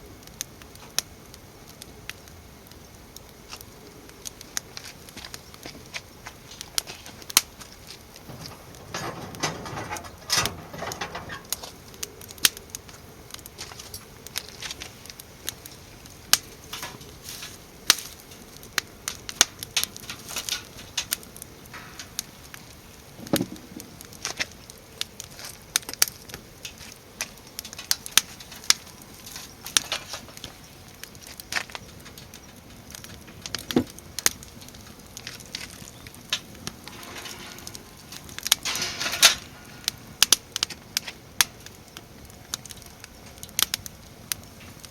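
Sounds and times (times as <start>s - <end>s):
firewood crackling and popping: 0.0s - 44.9s
handling rustle: 4.8s - 11.8s, 16.6s - 18.5s.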